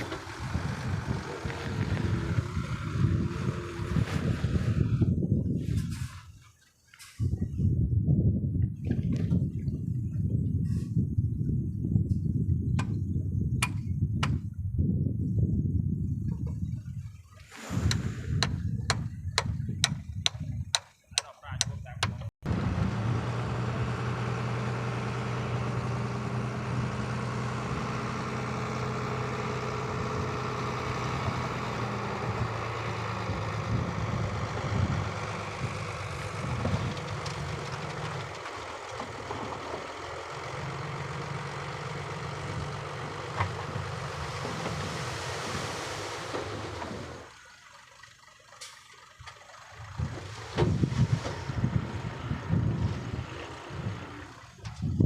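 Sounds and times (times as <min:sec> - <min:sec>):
diesel machinery engine drone: 0:00.0 - 0:05.3, 0:21.4 - 0:55.0.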